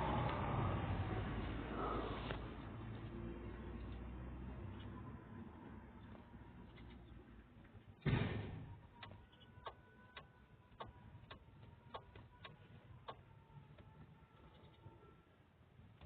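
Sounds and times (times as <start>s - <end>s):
dull thud: 8.0s - 8.7s.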